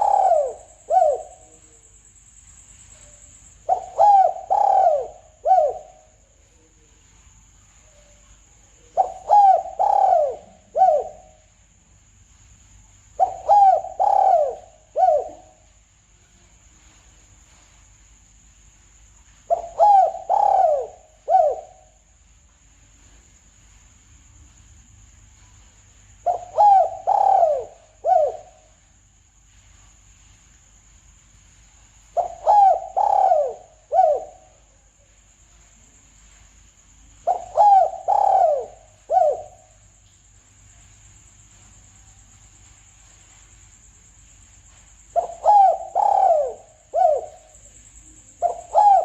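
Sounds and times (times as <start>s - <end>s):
dove cooing: 0.0s - 1.7s, 3.6s - 6.2s, 8.9s - 11.4s, 13.2s - 15.6s, 19.5s - 22.0s, 26.2s - 28.8s, 32.2s - 34.6s, 37.2s - 39.7s, 45.2s - 49.0s
faint high-pitched whine: 0.0s - 49.0s.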